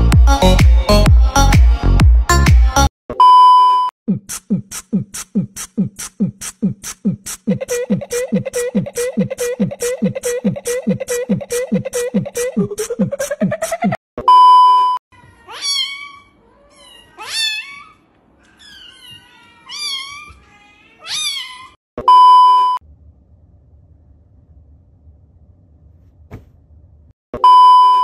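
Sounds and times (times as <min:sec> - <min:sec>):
test-tone beep: 0:03.1 - 0:03.9, 0:27.4 - 0:28.0
kitten meowing: 0:15.4 - 0:21.8.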